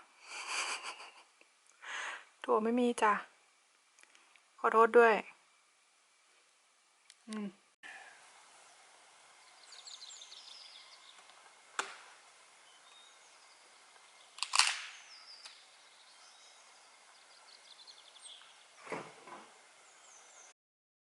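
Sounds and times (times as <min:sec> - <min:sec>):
small birds trilling: 0:08.8 - 0:11.4, 0:12.5 - 0:18.8, 0:19.5 - 0:20.5.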